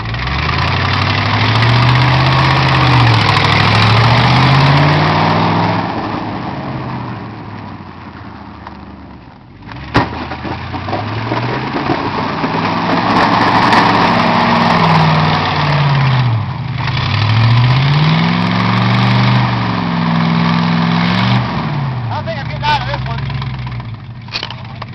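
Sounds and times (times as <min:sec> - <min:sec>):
vehicle engine revving: 0:00.0 - 0:24.9.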